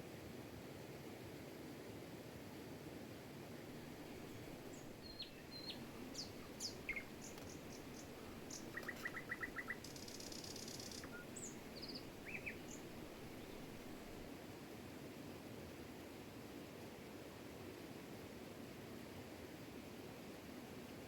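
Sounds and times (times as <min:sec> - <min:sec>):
songbirds chirping: 0:03.8 - 0:14.3
buzzy bird trill: 0:04.3 - 0:14.0.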